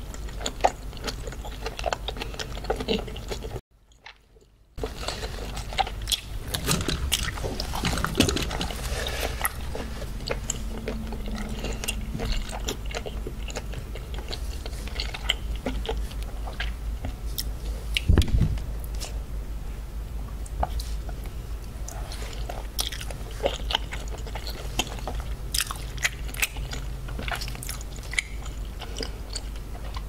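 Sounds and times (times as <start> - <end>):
wet chewing clicks and smacks: 7.0 - 18.3, 22.4 - 30.0.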